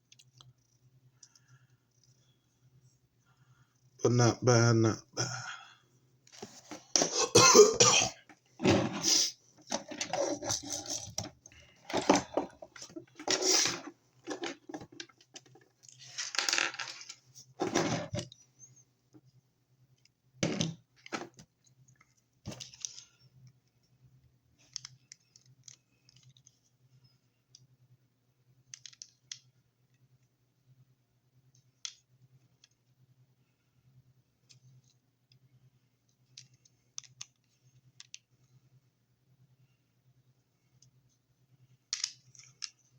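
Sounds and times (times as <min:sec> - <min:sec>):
plastic toy parts clicking and rattling: 0:09.6 - 0:17.2, 0:24.6 - 0:26.6, 0:28.7 - 0:29.6, 0:36.3 - 0:38.3, 0:41.9 - 0:42.9.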